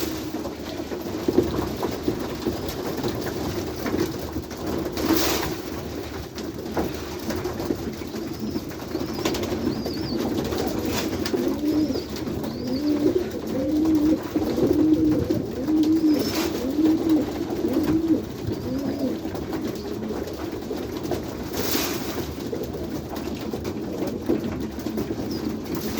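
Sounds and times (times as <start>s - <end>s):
pigeons cooing: 8.0s - 20.6s.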